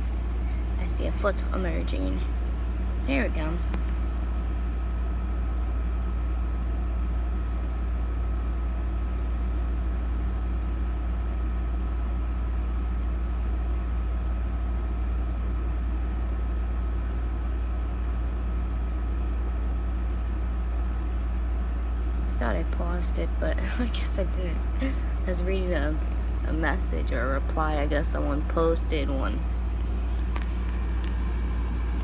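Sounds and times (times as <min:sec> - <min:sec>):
faint constant whine: 0:00.0 - 0:32.0
low mechanical hum: 0:00.0 - 0:32.0.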